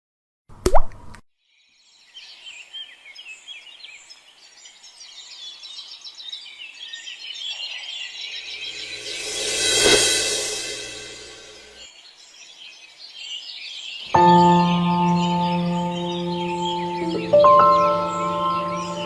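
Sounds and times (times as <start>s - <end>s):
songbirds chirping: 1.4s - 9.0s, 11.8s - 19.0s
rising whoosh: 8.5s - 11.8s
loud metallic clang: 8.6s - 11.8s.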